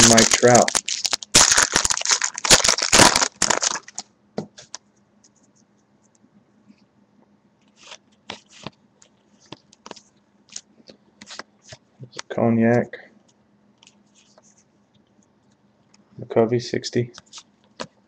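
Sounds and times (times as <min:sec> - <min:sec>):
cards rustling and clicking: 0:00.0 - 0:04.0, 0:07.7 - 0:12.2
wrapper ripping open: 0:00.0 - 0:04.0.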